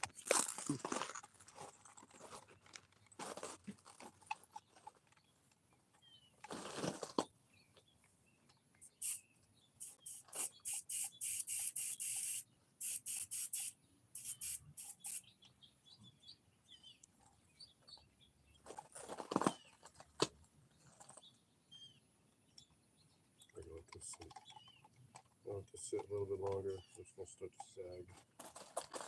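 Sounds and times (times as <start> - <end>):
spray gun hissing bursts: 8.9 - 9.2, 9.8 - 15.2.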